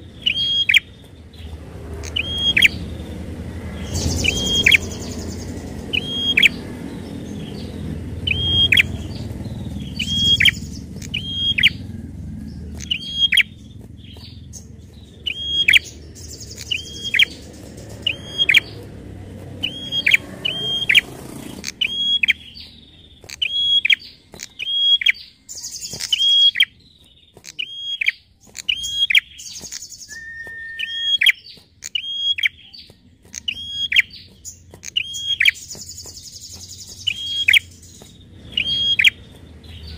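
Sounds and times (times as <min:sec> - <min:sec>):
low background rumble: 0:00.0 - 0:25.9
bird sharp hooked chirps: 0:00.0 - 0:39.9.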